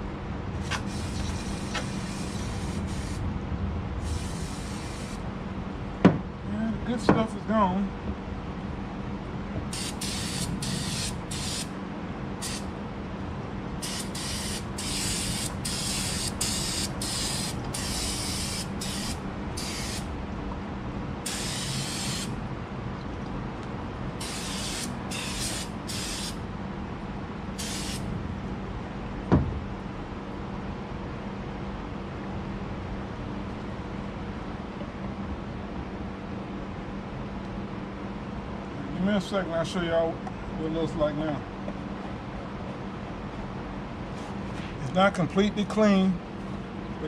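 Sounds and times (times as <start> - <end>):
steady background hum: 0.0 - 47.0
aerosol can spraying: 4.0 - 5.2, 9.8 - 11.7, 12.4 - 12.7, 13.8 - 20.0, 21.3 - 22.3, 24.2 - 26.4, 27.6 - 28.1.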